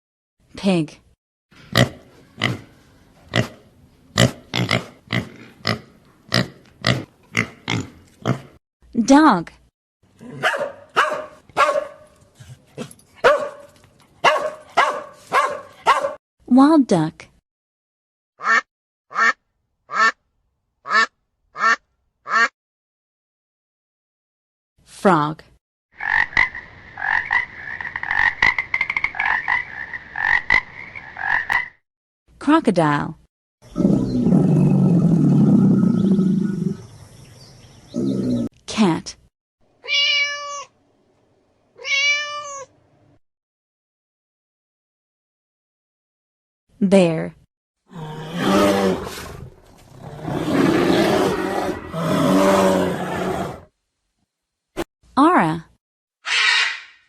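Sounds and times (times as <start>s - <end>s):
pig grunting: 1.7s - 2.7s, 3.3s - 8.6s, 33.7s - 36.9s, 47.9s - 53.7s
frog croaking: 26.0s - 31.8s.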